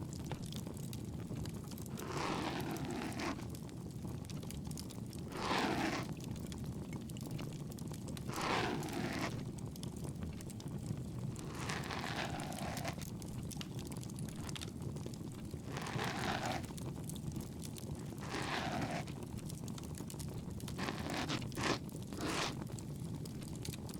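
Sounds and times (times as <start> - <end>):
bonfire crackling and popping: 0.0 - 2.0, 3.5 - 5.3, 6.1 - 8.3, 9.4 - 11.4, 13.0 - 15.7, 16.6 - 18.2, 19.0 - 20.8, 21.4 - 23.9
soft rushing stroke: 20.8 - 22.6.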